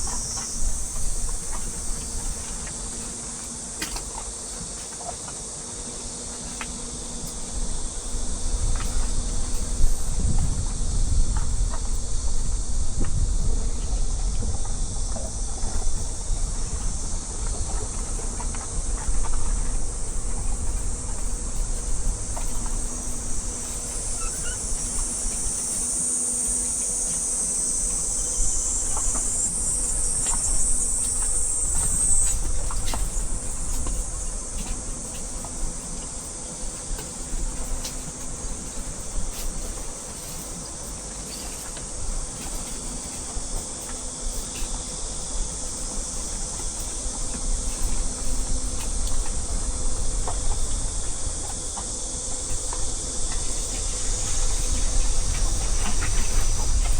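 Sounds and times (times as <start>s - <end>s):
high-pitched insect chorus: 0.0s - 56.9s.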